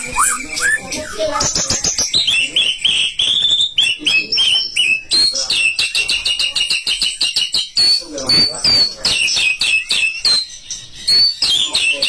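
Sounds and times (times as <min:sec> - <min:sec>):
bird singing whistles: 0:00.0 - 0:02.0.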